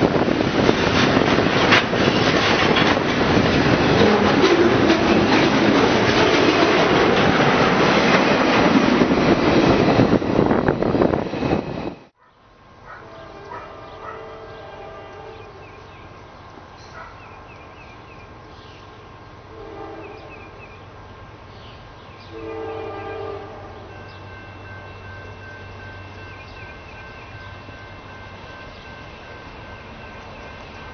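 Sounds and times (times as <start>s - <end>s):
freight train rumbling on rails: 0.0s - 30.9s
faint train horn: 3.9s - 5.3s, 12.2s - 15.9s, 19.5s - 20.6s, 22.2s - 25.8s.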